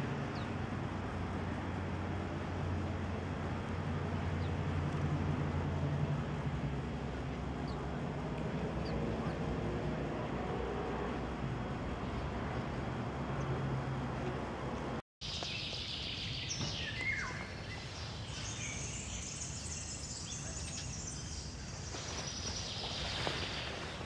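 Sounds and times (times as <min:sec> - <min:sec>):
small birds chirping: 0:15.2 - 0:24.0.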